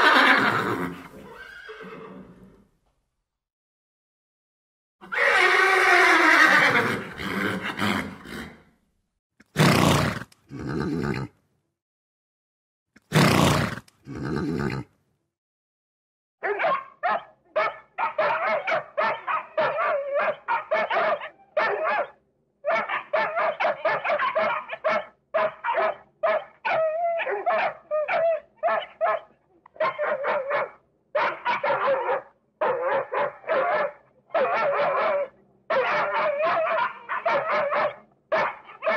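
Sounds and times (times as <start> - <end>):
horse whinny: 0.0 - 2.6, 5.0 - 8.7, 9.6 - 11.4, 13.1 - 14.9
dogs barking: 16.4 - 38.9.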